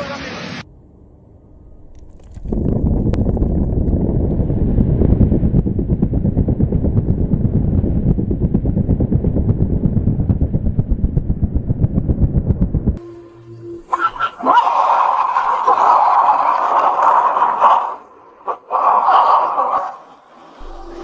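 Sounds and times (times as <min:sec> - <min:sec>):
rapid low rattling clatter: 0:01.9 - 0:13.0.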